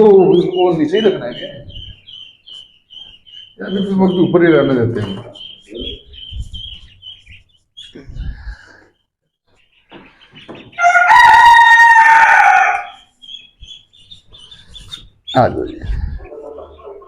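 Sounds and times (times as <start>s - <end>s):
rooster crowing: 10.8s - 13.0s.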